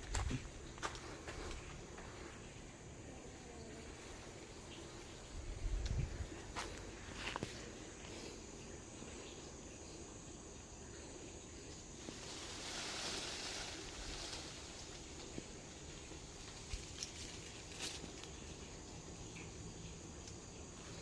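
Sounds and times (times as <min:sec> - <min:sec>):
low steady hiss: 0:00.0 - 0:21.0
rustling: 0:12.0 - 0:18.5.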